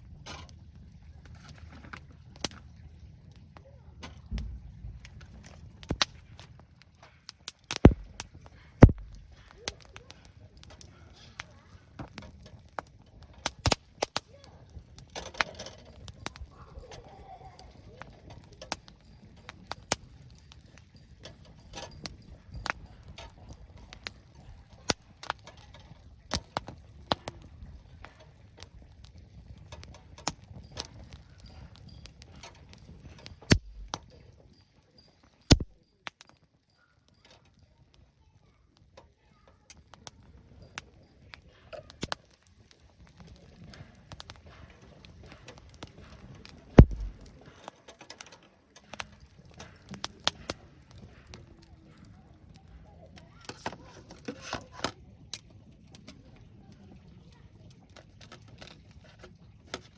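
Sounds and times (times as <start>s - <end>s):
sharp clicks and light knocks: 4.0s - 14.2s, 29.6s - 34.2s, 35.5s - 36.3s, 41.8s - 42.3s, 43.1s - 51.4s
low background rumble: 8.8s - 9.4s, 33.5s - 34.0s, 46.8s - 47.2s.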